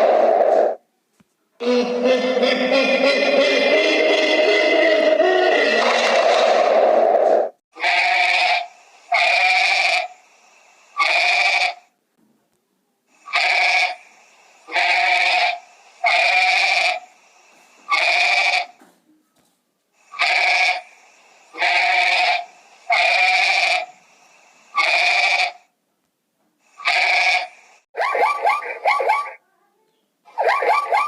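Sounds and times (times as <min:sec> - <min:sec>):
goat bleating: 0:07.8 - 0:08.6, 0:14.7 - 0:17.0, 0:17.9 - 0:18.7, 0:21.6 - 0:22.4.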